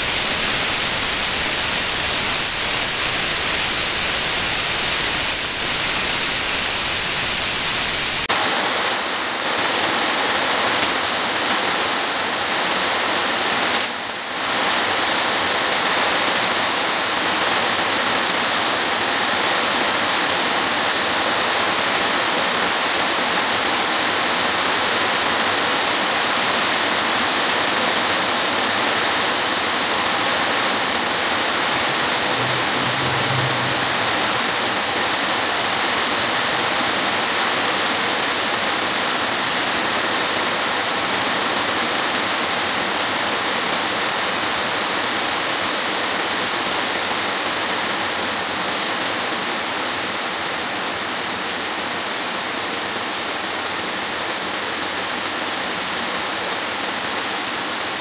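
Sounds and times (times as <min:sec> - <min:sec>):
loud rushing hiss: 0:00.0 - 0:09.8, 0:10.4 - 0:46.6.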